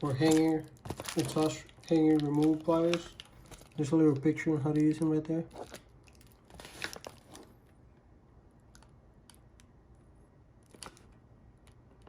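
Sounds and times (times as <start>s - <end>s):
packaging clicks and rustles: 0.0s - 7.6s, 10.6s - 12.0s.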